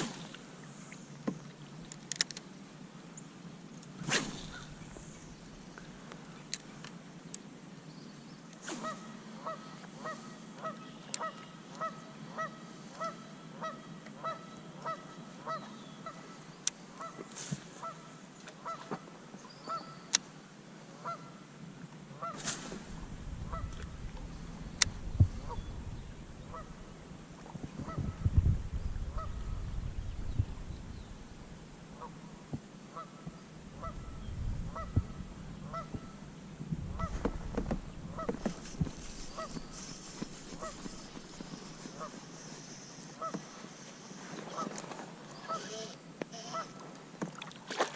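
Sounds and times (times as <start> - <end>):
low rumbling noise: 4.1 - 6.5, 22.6 - 32.6, 33.4 - 42.4
goose honking: 23.5 - 24.4, 26.5 - 26.9, 38.1 - 38.6, 40.5 - 42.2, 45.5 - 46.8.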